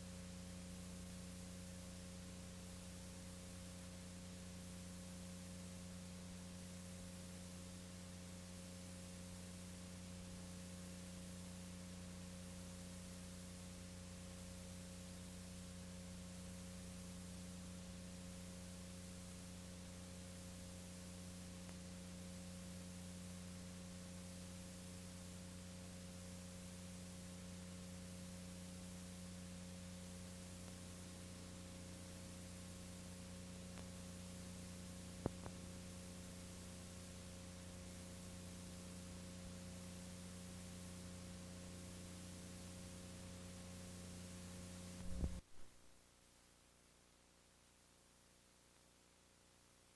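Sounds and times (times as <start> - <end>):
electrical hum with hiss: 0.0 - 49.9.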